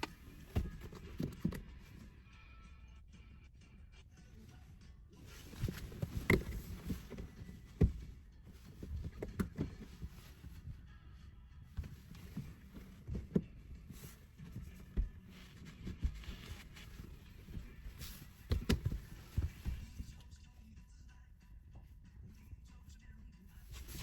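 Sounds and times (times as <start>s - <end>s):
objects thumping and knocking: 0.0s - 2.0s, 5.5s - 10.6s, 11.8s - 20.1s
rustling: 5.2s - 10.9s, 11.7s - 20.2s, 23.5s - 24.0s.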